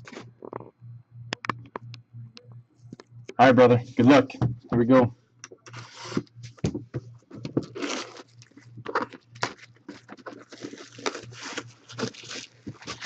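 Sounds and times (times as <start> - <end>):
low electrical hum: 0.0 - 13.0
packaging rustling: 7.3 - 13.0.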